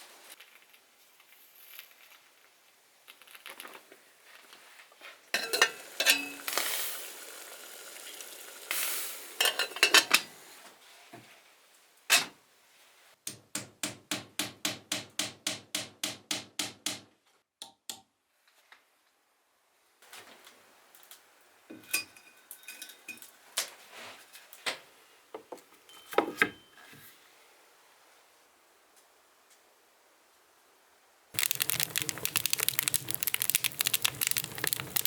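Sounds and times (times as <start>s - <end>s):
utensils clattering against dishes: 5.4s - 6.5s, 9.4s - 10.3s.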